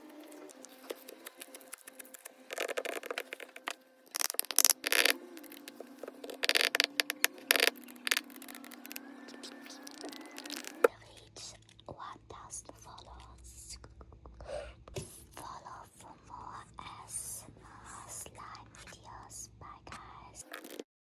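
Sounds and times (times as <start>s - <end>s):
slime crackling when squeezed: 0.6s - 10.9s.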